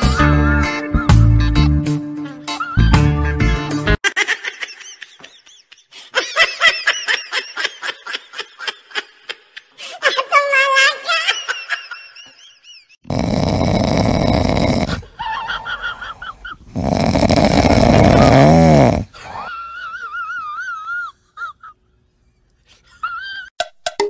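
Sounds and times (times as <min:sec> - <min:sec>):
dog snoring loudly: 0:13.0 - 0:15.1, 0:16.7 - 0:19.2.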